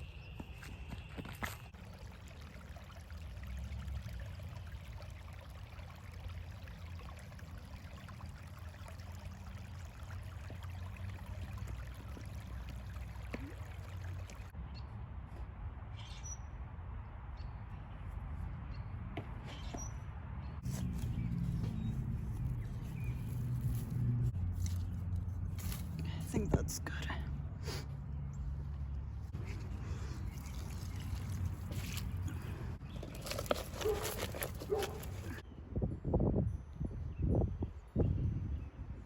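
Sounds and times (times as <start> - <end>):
wind rumble on microphone: 34.7 - 39.0.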